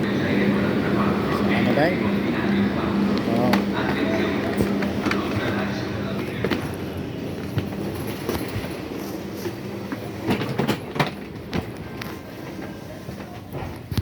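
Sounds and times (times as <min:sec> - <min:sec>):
passenger train rumble: 0:00.0 - 0:14.0
train clicks and knocks: 0:03.1 - 0:14.0.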